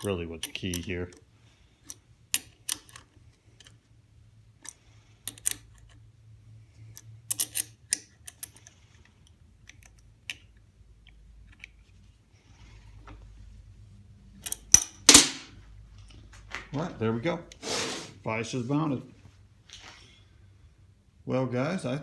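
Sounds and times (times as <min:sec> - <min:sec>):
metal clicks and clinks: 0:14.4 - 0:15.5.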